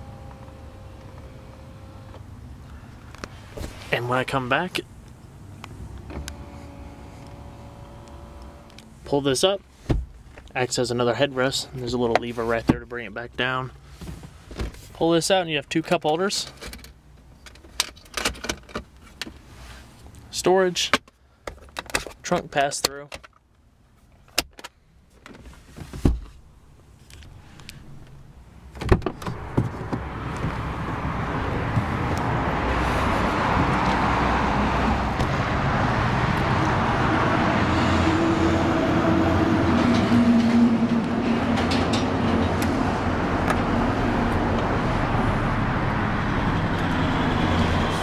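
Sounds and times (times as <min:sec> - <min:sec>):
traffic rushing: 0:00.0 - 0:12.7, 0:28.2 - 0:48.0
car door thumping shut: 0:09.9 - 0:10.1, 0:28.8 - 0:30.6.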